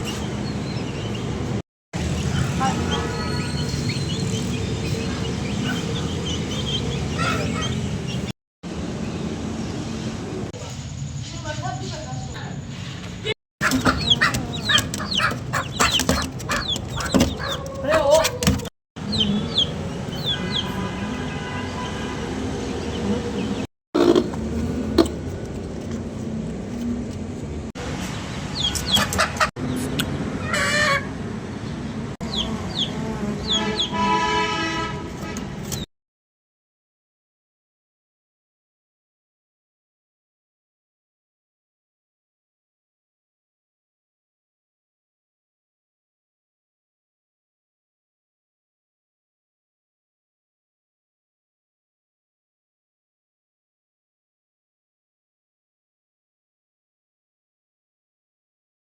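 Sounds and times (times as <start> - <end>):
birds chirping: 0.0 - 26.4, 28.1 - 34.1
chickens clucking: 13.6 - 20.8.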